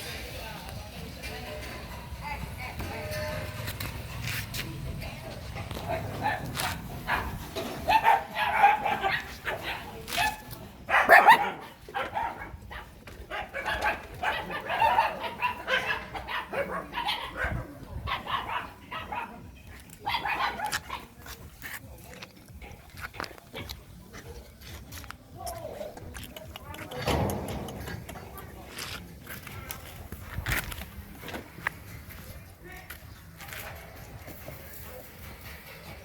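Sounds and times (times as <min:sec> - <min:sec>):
puppy barking and yipping: 0:05.7 - 0:19.4, 0:20.0 - 0:21.1.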